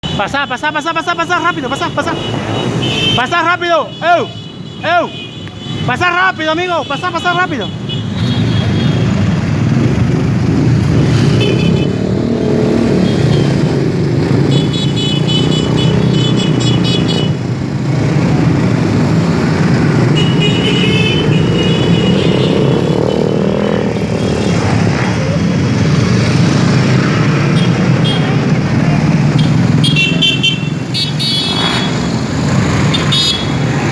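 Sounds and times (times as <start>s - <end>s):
vehicle horns honking: 0.0s - 9.4s, 11.2s - 17.4s, 20.0s - 24.7s, 27.4s - 28.6s, 29.3s - 33.8s
motorcycles riding past: 7.9s - 33.9s.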